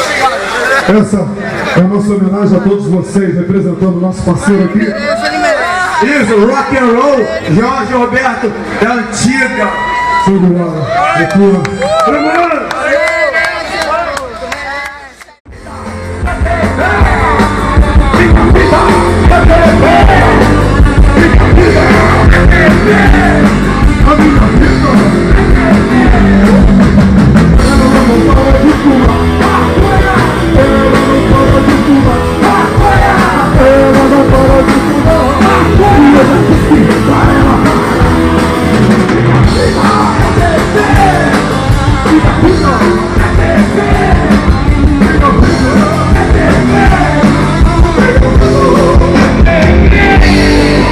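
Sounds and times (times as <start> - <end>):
drum kit: 15.5 - 50.9
electric guitars: 15.5 - 50.9
person singing: 15.5 - 50.9.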